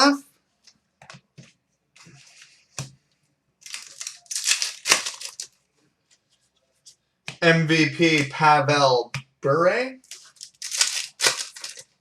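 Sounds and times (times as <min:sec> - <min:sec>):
papery rustling of cards: 0:03.6 - 0:06.4, 0:10.0 - 0:12.0.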